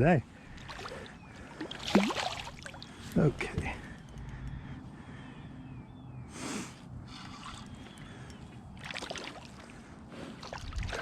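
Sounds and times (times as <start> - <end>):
water sloshing around kayak: 0.5 - 3.8, 7.3 - 11.0
wind rumble on microphone: 10.5 - 11.0.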